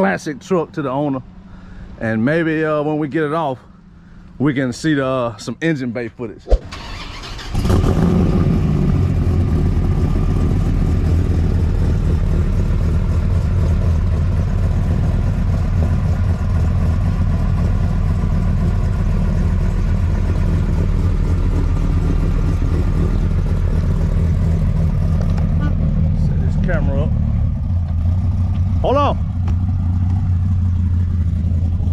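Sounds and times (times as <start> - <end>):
truck engine idling: 6.5 - 7.6, 8.8 - 31.9.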